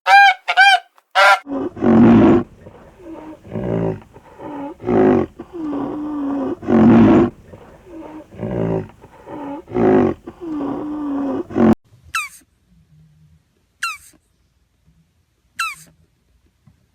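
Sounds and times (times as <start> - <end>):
lion roaring: 1.4 - 11.8.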